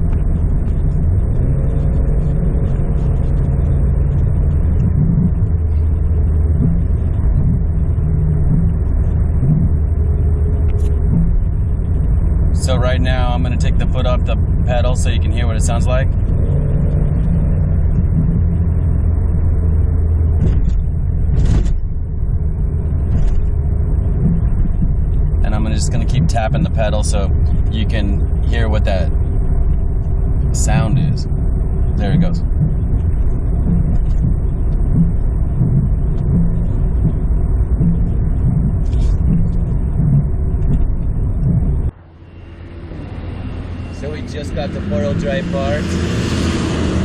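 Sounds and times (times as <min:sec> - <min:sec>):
driveline rumble: 0:00.0 - 0:47.0
rhythmic squishing: 0:00.0 - 0:47.0.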